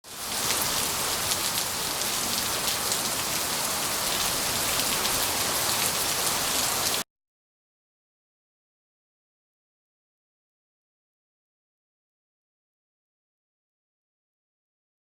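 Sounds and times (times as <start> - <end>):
steady rain patter: 0.0 - 7.0.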